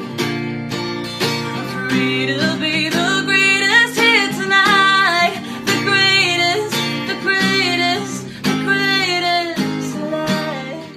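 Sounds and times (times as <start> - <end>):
strummed acoustic guitar: 0.0 - 10.9
girl singing pop song: 1.1 - 10.9.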